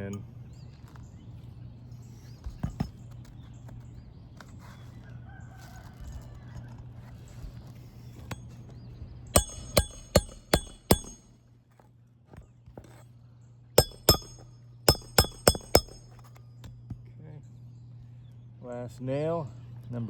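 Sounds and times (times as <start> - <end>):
hammer clanking on steel: 9.4 - 11.4, 13.8 - 16.9.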